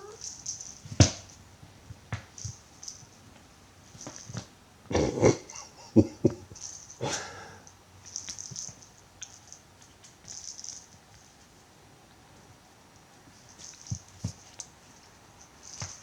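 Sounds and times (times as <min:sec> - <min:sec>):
cats scuffling: 0:13.2 - 0:16.0
scratching and rustling: 0:13.3 - 0:16.0.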